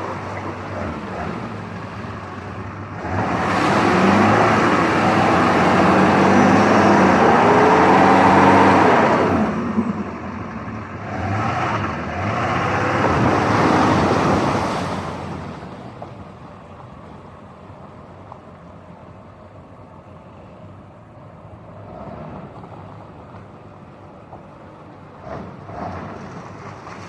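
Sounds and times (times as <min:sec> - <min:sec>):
truck engine revving: 0:00.0 - 0:15.7.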